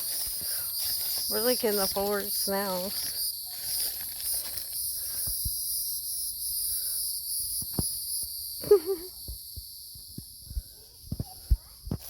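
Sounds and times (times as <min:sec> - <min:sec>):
footsteps in undergrowth: 0:00.0 - 0:05.6
insects trilling: 0:00.0 - 0:11.5.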